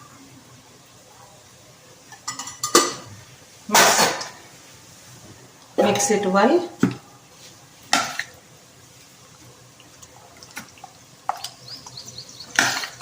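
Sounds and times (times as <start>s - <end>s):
onions frying in oil: 0.0s - 13.0s
spoon scraping a pan: 12.5s - 13.0s.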